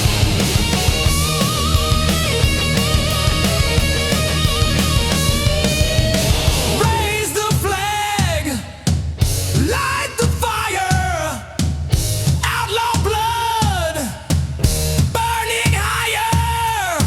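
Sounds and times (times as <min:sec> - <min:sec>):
drum kit: 0:00.0 - 0:17.0
hard rock music: 0:00.0 - 0:17.0
person singing and shouting: 0:06.6 - 0:08.9, 0:09.6 - 0:11.7, 0:12.3 - 0:14.4, 0:15.1 - 0:17.0.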